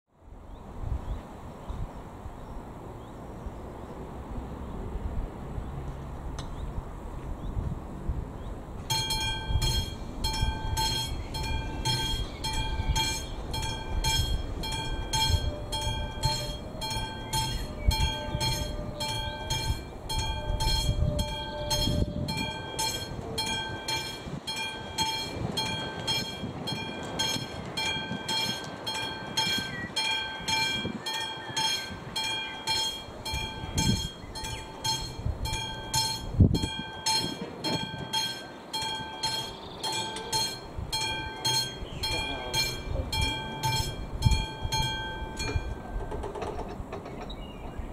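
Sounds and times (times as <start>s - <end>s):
railway crossing warning bell: 8.8s - 47.0s.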